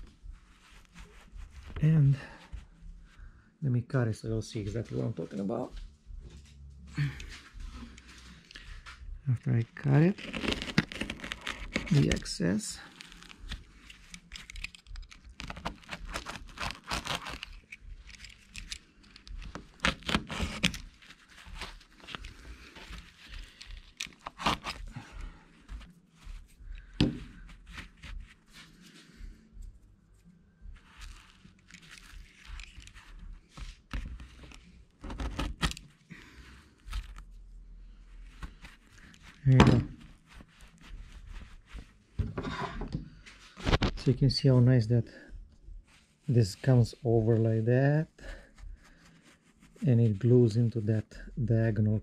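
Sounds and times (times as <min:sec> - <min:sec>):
rustling: 0:09.8 - 0:37.3, 0:38.0 - 0:44.1
carpet scraping and rustling: 0:38.3 - 0:44.2.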